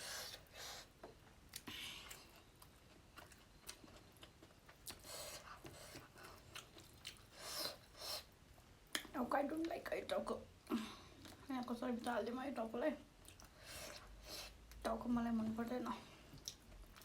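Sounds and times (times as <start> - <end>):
person chewing: 0.1 - 9.1, 13.2 - 14.8.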